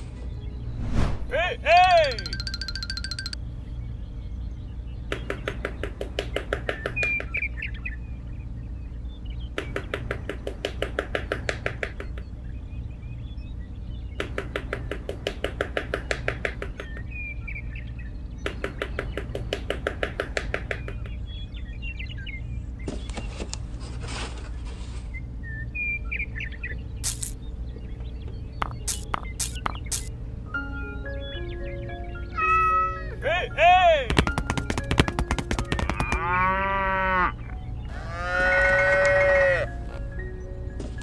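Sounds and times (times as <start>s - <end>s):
bird trilling: 1.9s - 3.4s, 28.6s - 30.1s, 31.2s - 39.7s
bird chirps: 1.9s - 23.5s, 24.8s - 33.6s.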